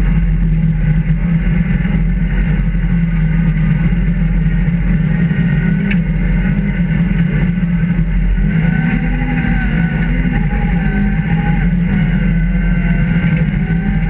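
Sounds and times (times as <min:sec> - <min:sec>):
rally car engine running hard: 0:00.0 - 0:14.0.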